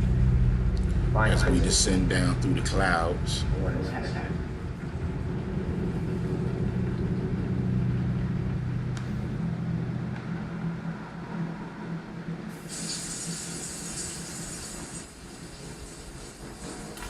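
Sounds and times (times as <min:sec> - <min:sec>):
low mechanical hum: 0:00.0 - 0:17.0
hiss: 0:12.6 - 0:17.0.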